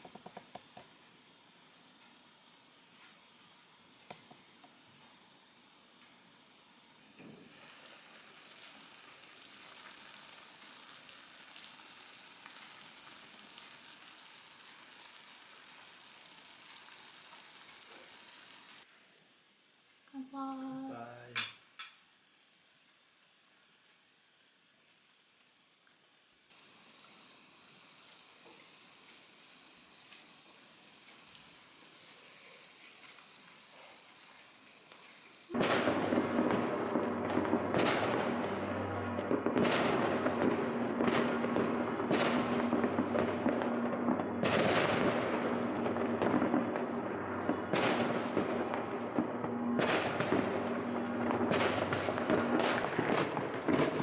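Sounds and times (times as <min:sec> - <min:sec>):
faint hiss: 0:00.0 - 0:39.0
fireworks banging and crackling: 0:07.2 - 0:18.9, 0:26.5 - 0:31.7, 0:34.9 - 0:54.0.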